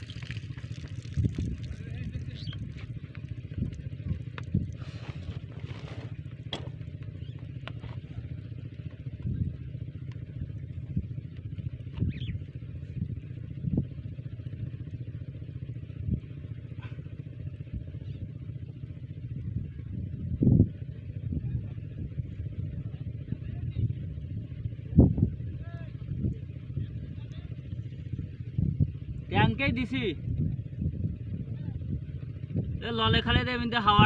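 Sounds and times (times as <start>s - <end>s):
diesel water pump engine: 0.0s - 34.0s.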